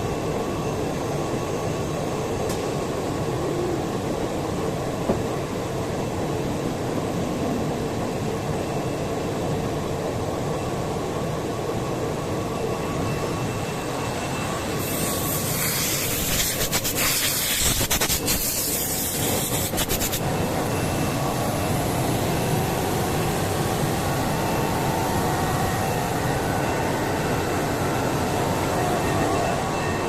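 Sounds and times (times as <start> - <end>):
spindle motor whine: 0.0 - 16.8, 18.2 - 30.0
small click: 2.5 - 2.7.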